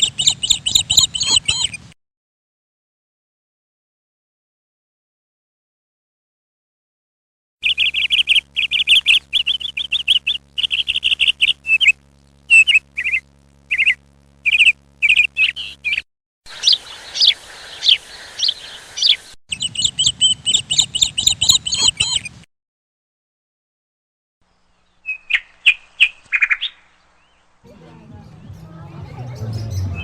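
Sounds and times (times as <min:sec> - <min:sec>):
small birds chirping: 0:00.0 - 0:02.0, 0:07.6 - 0:22.5, 0:24.4 - 0:27.6, 0:28.2 - 0:30.0.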